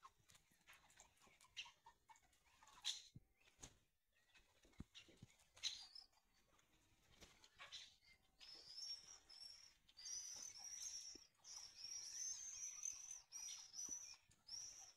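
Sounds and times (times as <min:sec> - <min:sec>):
high-pitched bird chirps: 0:07.6 - 0:14.9.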